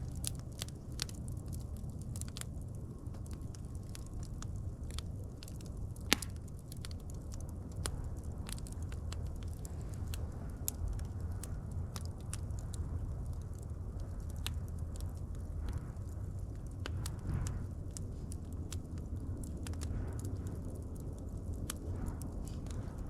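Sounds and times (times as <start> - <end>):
wood fire crackling: 0.0 - 23.0
sharp pops and snaps: 3.1 - 12.8.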